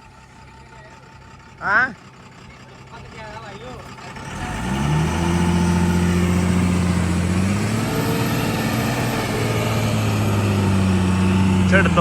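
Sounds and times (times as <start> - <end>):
heavy diesel engine revving: 0.0 - 12.0.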